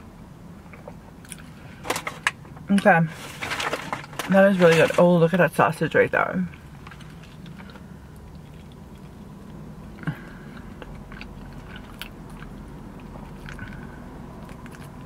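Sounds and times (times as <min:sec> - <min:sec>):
steady low hum: 0:00.0 - 0:15.0
person chewing food: 0:00.7 - 0:01.6, 0:06.5 - 0:15.0.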